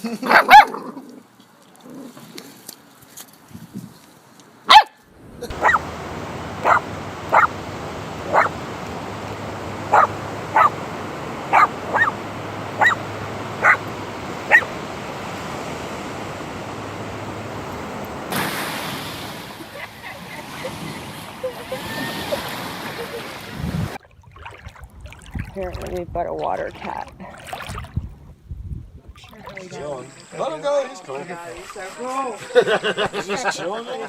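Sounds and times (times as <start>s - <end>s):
dog barking: 0.3s - 0.8s, 4.7s - 5.9s, 6.6s - 7.6s, 8.3s - 8.6s, 9.9s - 10.8s, 11.5s - 12.2s, 12.8s - 13.0s, 13.6s - 14.8s
background hiss: 2.0s - 20.4s.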